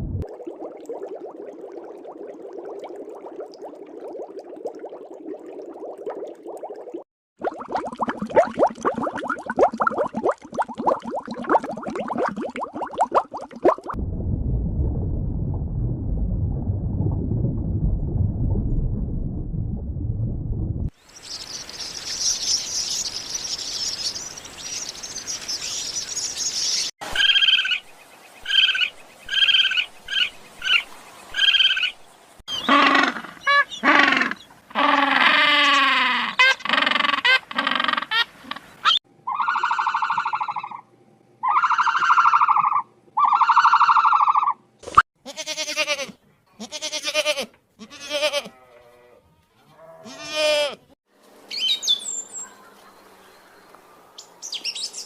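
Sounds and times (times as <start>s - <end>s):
animal calls: 32.5s - 40.8s, 41.4s - 44.6s
bleating: 45.2s - 50.9s.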